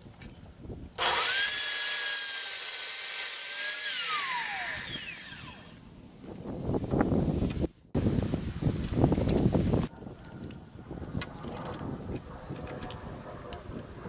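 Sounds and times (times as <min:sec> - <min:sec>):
wood router whining: 0:01.0 - 0:05.8.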